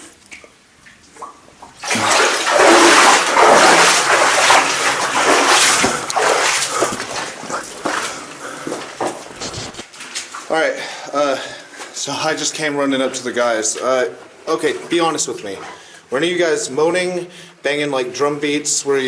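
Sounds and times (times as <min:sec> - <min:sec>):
splashing: 0:01.8 - 0:09.9
hurried running footsteps: 0:09.0 - 0:09.8
rustling: 0:09.0 - 0:09.9.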